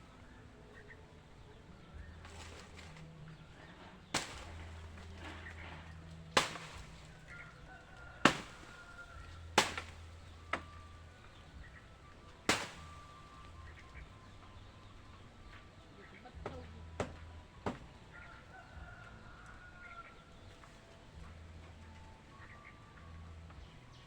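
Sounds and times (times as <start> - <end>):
sharp knocking blows: 4.2 - 5.3, 6.4 - 7.1, 8.2 - 8.7, 9.6 - 10.7, 12.5 - 13.2.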